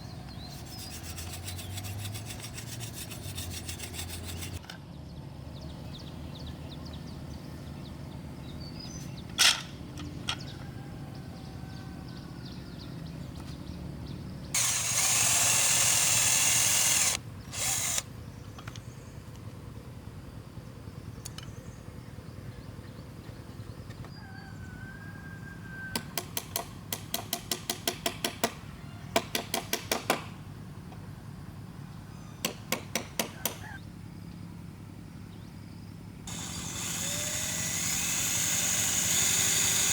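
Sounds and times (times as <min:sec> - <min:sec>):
power drill running: 0:14.6 - 0:18.0, 0:36.3 - 0:39.9.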